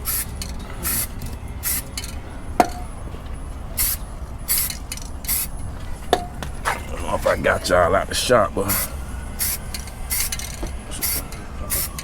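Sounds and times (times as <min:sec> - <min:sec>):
spray hissing bursts: 0:00.0 - 0:02.0, 0:03.8 - 0:05.6, 0:08.6 - 0:10.4, 0:11.0 - 0:12.0.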